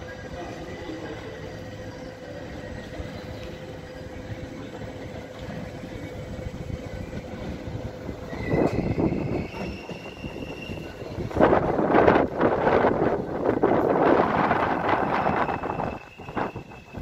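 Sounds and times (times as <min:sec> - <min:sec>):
electric train rumbling: 0:00.0 - 0:17.0
high squealing tone rising: 0:08.2 - 0:11.3, 0:14.5 - 0:17.0.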